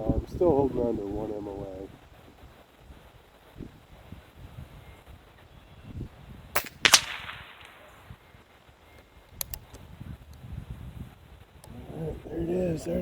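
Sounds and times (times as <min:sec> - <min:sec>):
air rifle shots cracking: 0:06.6 - 0:08.6
faint clicks: 0:06.6 - 0:10.5.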